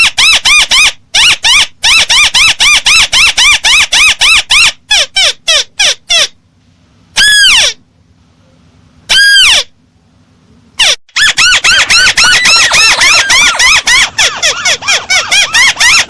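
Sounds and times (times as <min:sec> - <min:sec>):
recorded crake call: 0:07.2 - 0:07.8, 0:08.4 - 0:09.8, 0:10.8 - 0:16.0.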